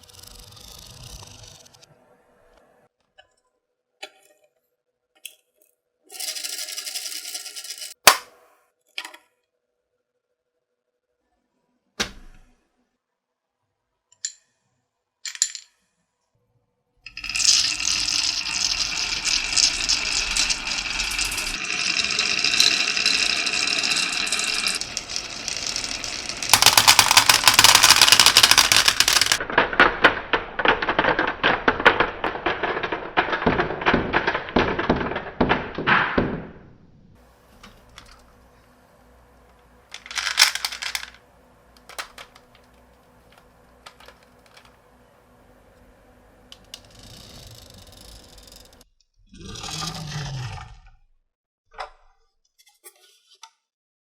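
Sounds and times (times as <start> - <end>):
marbles rattling down a marble run: 6.1 - 8.0, 17.1 - 29.5, 30.6 - 35.4, 39.9 - 41.2, 41.8 - 42.7.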